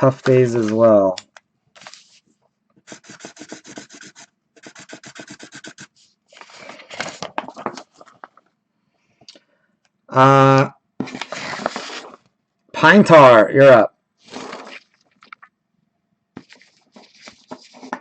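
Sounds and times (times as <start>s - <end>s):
quick scratching rubbing strokes: 2.9s - 6.2s, 14.2s - 14.9s
scratchy rustle: 11.1s - 12.2s, 14.2s - 15.0s, 16.4s - 18.0s.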